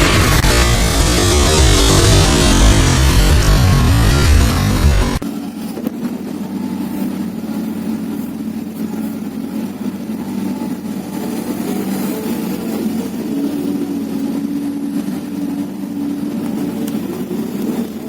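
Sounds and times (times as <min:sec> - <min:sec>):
excavator diesel engine droning: 0:00.0 - 0:05.2.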